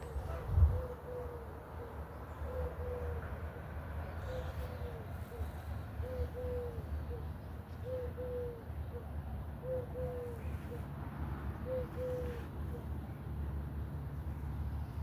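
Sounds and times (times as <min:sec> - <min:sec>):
dove cooing: 0:00.6 - 0:03.2, 0:04.2 - 0:10.9, 0:11.6 - 0:12.9.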